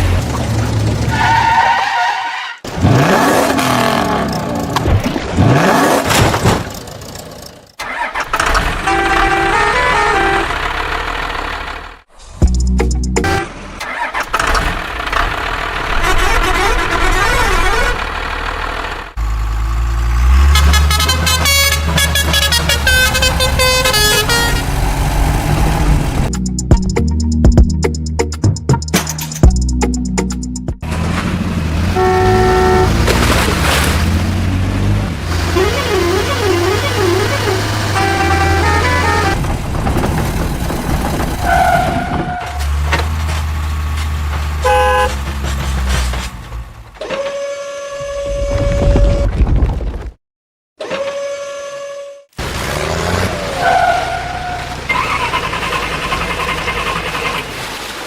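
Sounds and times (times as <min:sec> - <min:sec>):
diesel engine drone: 0:00.0 - 0:01.6, 0:05.5 - 0:28.8, 0:29.5 - 0:47.1, 0:52.4 - 0:58.0
horn sounding: 0:08.6 - 0:11.1, 0:13.0 - 0:13.6, 0:20.4 - 0:24.8, 0:31.9 - 0:33.2, 0:35.3 - 0:39.4, 0:44.6 - 0:45.3
music with drum hits: 0:26.3 - 0:30.8.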